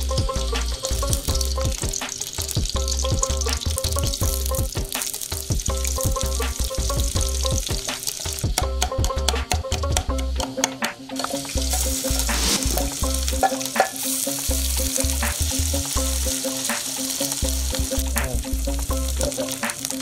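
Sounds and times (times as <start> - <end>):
background music with bass beat: 0.0 - 20.0
oil sizzling in iron pan: 0.0 - 20.0
wooden spatula stirring: 11.2 - 14.0.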